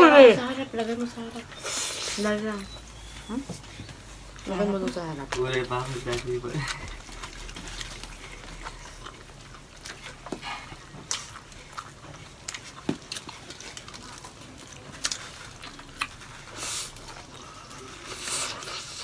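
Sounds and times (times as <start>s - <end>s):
chewing and mouth smacks: 0.7s - 19.0s.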